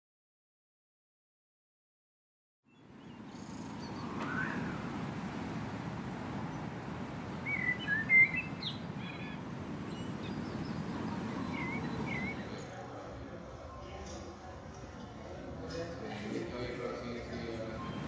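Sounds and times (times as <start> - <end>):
small birds chirping: 2.7 - 12.8, 17.7 - 18.0
outdoor background noise: 2.7 - 18.0.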